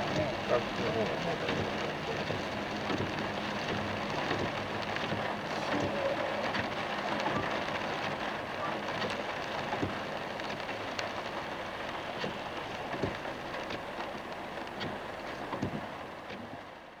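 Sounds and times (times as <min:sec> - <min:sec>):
raindrop ticks: 0:00.0 - 0:16.6
tyres hissing on wet road: 0:00.0 - 0:16.6
heavy rain on a car: 0:00.0 - 0:17.0.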